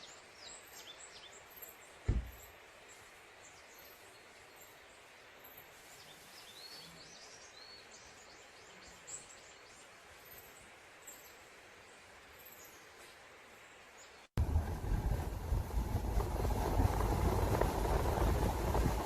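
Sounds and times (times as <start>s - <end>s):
bird chirping: 0.0s - 14.3s
soft steady hiss: 0.0s - 19.0s.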